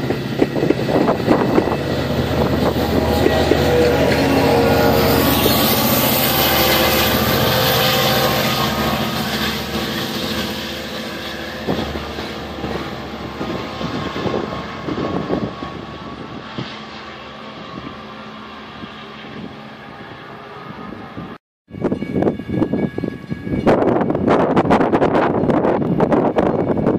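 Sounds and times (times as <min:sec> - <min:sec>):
diesel train engine passing: 0:00.0 - 0:26.9.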